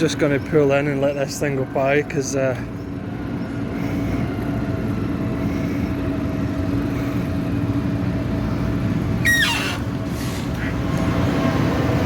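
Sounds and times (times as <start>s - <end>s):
combine harvester engine: 0.0s - 12.0s
high squeal falling in pitch: 9.2s - 9.9s.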